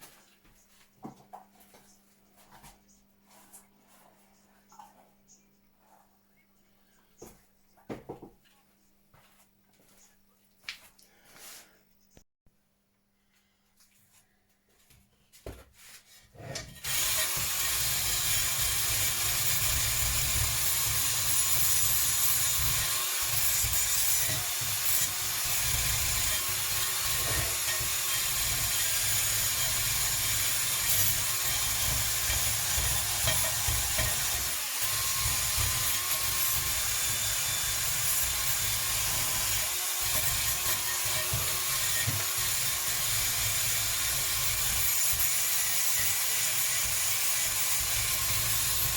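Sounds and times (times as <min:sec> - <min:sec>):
power tool rasping: 0:16.4 - 0:48.9.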